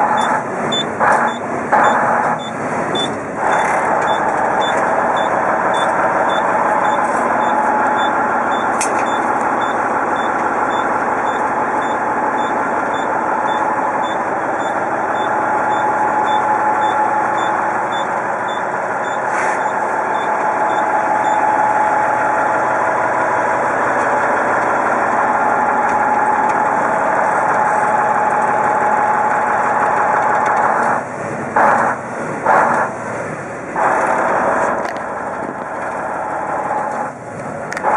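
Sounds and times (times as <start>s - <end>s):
backup alarm beeping: 0.0s - 22.0s
diesel truck engine running: 0.0s - 37.9s.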